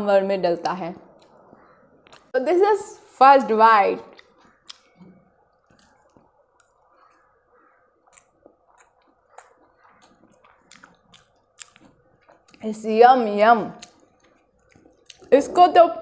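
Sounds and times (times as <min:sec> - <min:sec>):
person chewing noodles: 0:04.1 - 0:12.7, 0:13.8 - 0:15.3.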